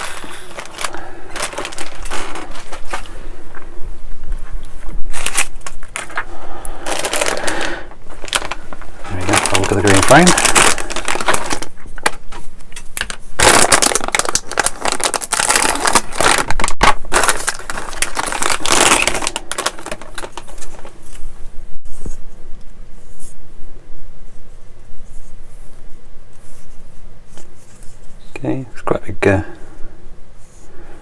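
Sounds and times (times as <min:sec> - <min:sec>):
plastic bag crinkling: 0:00.0 - 0:03.7, 0:04.3 - 0:21.3.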